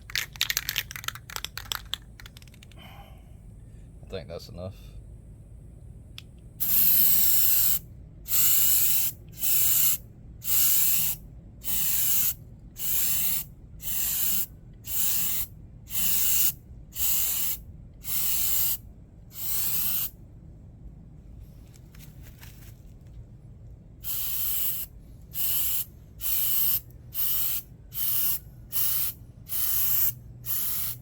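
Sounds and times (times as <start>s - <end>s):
aerosol can spraying hiss: 6.6s - 18.8s, 19.4s - 20.1s, 24.0s - 31.0s.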